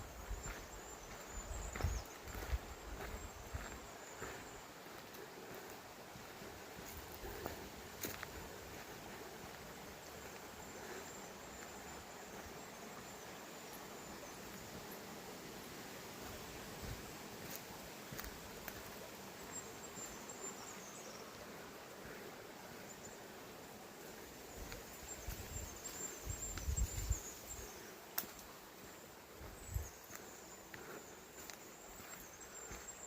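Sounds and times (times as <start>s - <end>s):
small birds trilling: 0.0s - 33.0s
river flowing: 2.7s - 25.1s
wind rumble on microphone: 25.3s - 27.3s.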